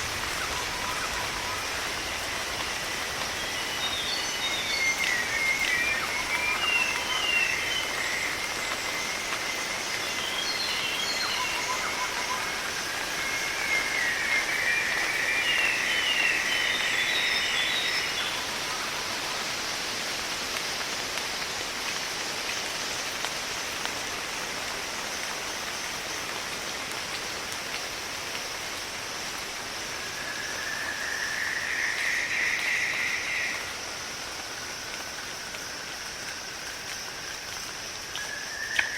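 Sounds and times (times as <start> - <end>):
high insect drone: 0.0 - 21.2, 22.0 - 38.9
steady rushing hiss: 0.0 - 38.1.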